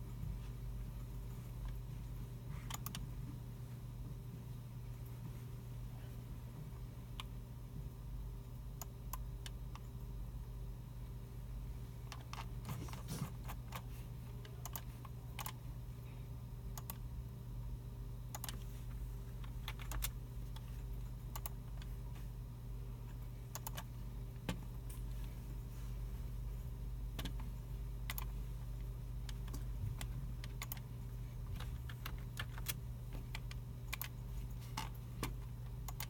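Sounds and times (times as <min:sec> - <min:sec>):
steady low hum: 0:00.0 - 0:36.0
computer keyboard keystrokes: 0:02.7 - 0:03.0, 0:13.3 - 0:15.6, 0:16.8 - 0:17.0, 0:18.3 - 0:18.6, 0:19.4 - 0:20.7, 0:21.3 - 0:21.9, 0:23.5 - 0:24.6, 0:27.1 - 0:27.4, 0:28.1 - 0:28.3, 0:29.3 - 0:30.9, 0:31.6 - 0:34.2, 0:34.8 - 0:36.0.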